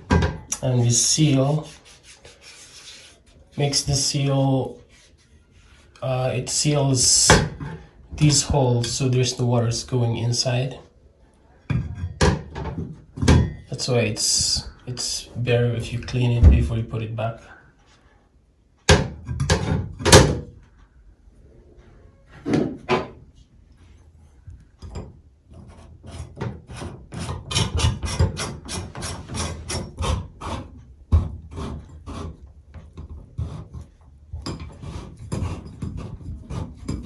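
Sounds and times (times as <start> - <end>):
tools scraping faucet trim: 25.5 - 30.7.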